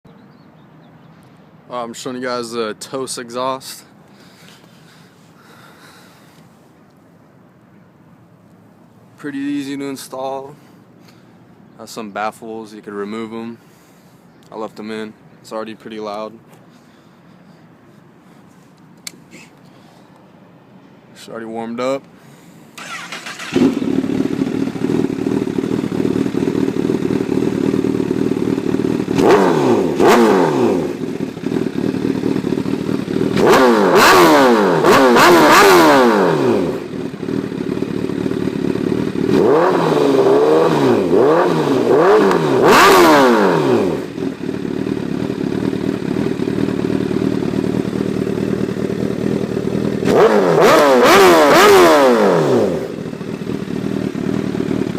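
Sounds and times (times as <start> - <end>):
motorcycle engine idling and revving: 22.8 - 54.9.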